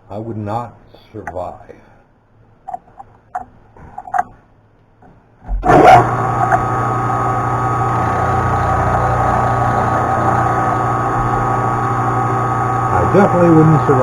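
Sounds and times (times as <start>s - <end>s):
mill motor humming: 5.6s - 14.0s.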